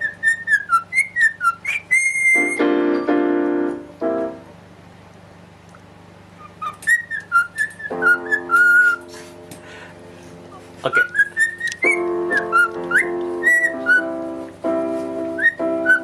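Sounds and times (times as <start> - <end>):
bird whistling: 0.0 - 2.7, 6.4 - 9.1, 10.8 - 14.2, 15.3 - 16.0.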